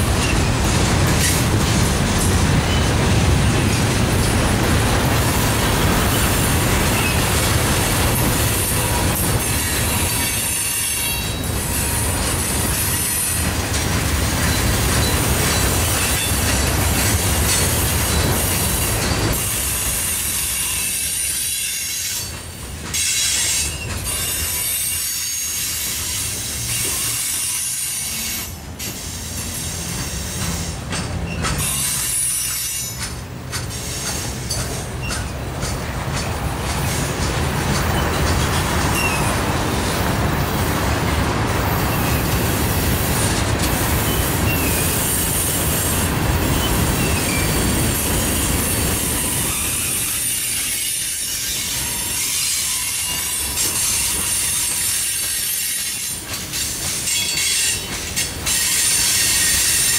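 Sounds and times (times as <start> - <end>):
train wheels rumbling on rails: 0.0 - 59.9
sharp knocks and clanks: 29.9 - 31.7, 32.4 - 39.0.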